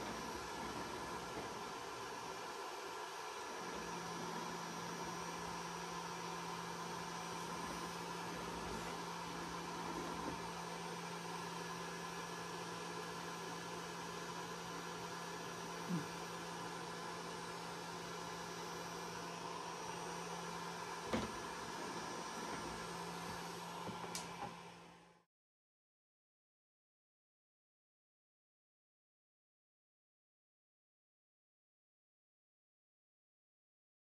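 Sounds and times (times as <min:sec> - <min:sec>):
electrical hum: 0:00.0 - 0:25.2.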